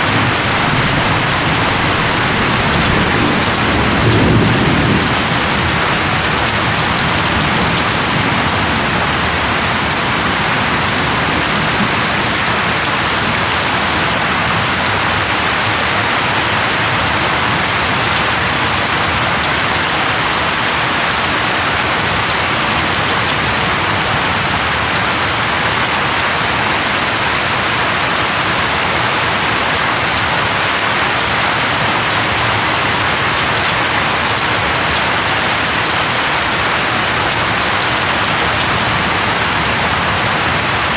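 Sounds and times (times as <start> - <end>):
thunder rumble: 0.0 - 12.2
rain hiss on surfaces: 0.0 - 40.9.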